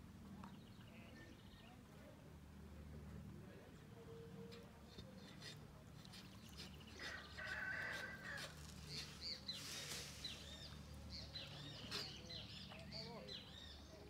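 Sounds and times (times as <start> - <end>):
birds chirping: 6.1 - 14.0.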